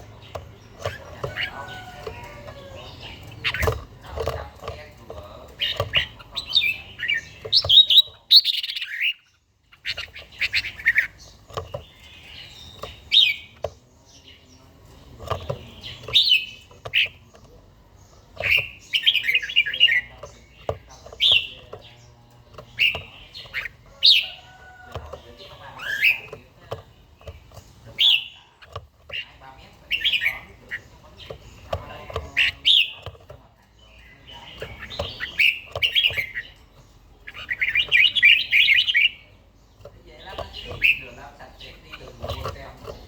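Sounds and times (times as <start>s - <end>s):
bird singing warbling phrases: 0.0s - 43.0s.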